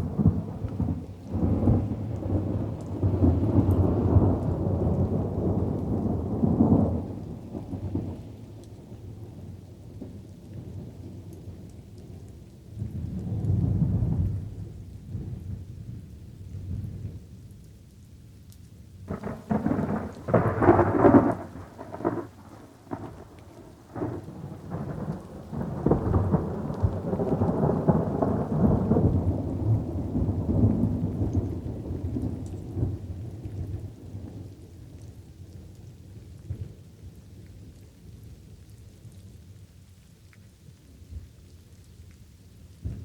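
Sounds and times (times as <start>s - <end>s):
thunder cracking and rumbling: 0.0s - 8.2s, 12.7s - 17.2s, 19.1s - 37.2s, 42.8s - 43.0s
light rain hiss: 0.0s - 43.0s.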